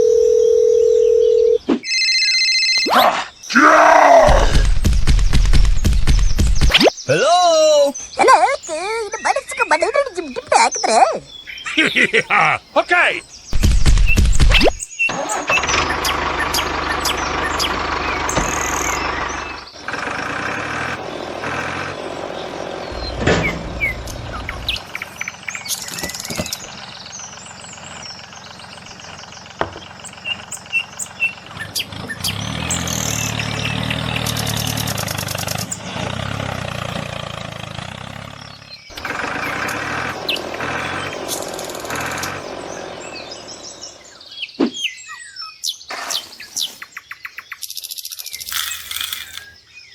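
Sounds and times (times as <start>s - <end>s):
birds chirping: 0.0s - 49.9s
small motor humming: 38.9s - 44.2s.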